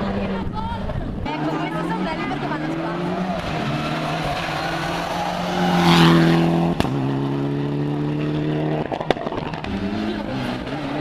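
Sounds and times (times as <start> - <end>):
rally car engine at full throttle: 0.0 - 11.0.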